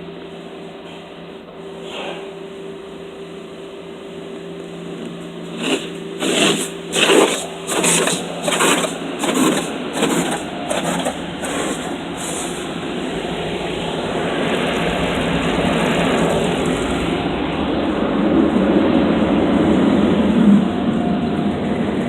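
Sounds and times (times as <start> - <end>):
steady rushing noise: 0.0 - 22.0
water spray swishing: 5.5 - 12.7.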